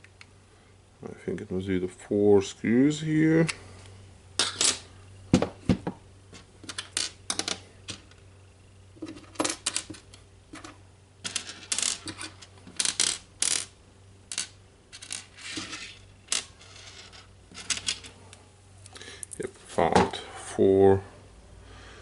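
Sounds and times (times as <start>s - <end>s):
metal screws clinking and rattling: 14.3s - 18.2s.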